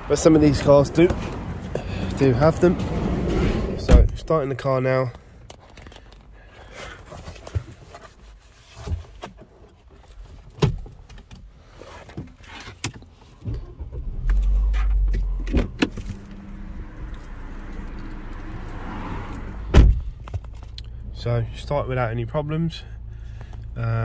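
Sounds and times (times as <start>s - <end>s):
car engine cranking and idling: 0.0s - 6.6s, 13.0s - 24.0s.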